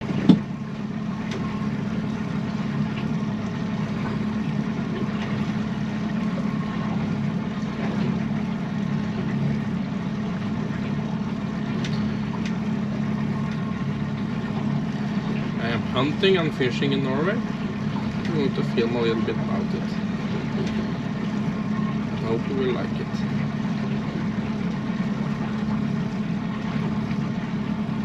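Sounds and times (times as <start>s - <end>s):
engine running steadily: 0.0s - 28.0s
faint clicks: 11.7s - 12.6s.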